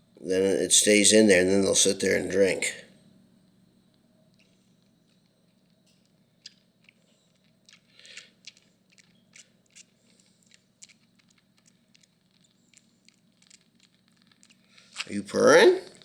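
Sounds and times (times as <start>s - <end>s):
kitten suckling wet clicks: 4.4s - 15.1s.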